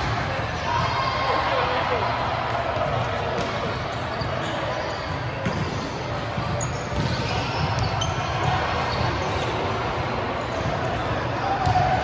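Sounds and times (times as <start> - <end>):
busy gym hall din: 0.0 - 12.0
volleyball strikes and bounces: 5.4 - 8.6.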